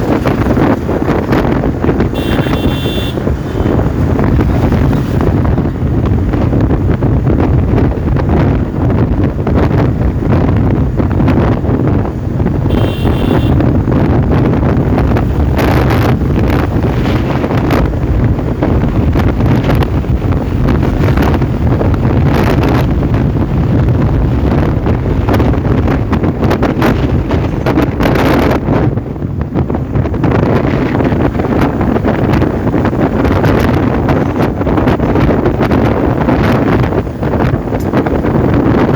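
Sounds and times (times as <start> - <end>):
engine and road rumble: 0.0 - 38.9
wind buffeting microphone: 0.0 - 38.9
high-pitched tone: 2.2 - 3.2, 12.7 - 13.6.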